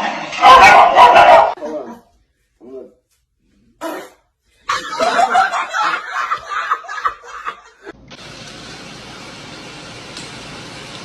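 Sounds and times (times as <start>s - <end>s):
person laughing hard: 4.7s - 7.9s.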